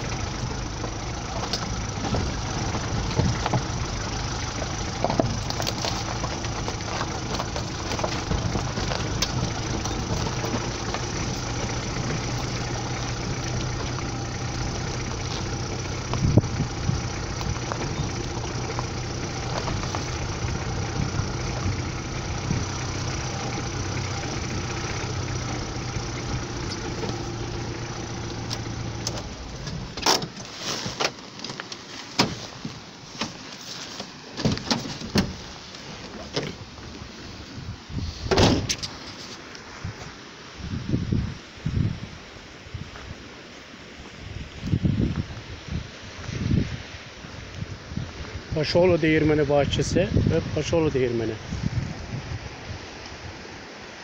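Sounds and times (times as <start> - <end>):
car engine running: 0.0 - 30.6, 34.2 - 37.3
tyres on stony dirt track: 0.0 - 54.0.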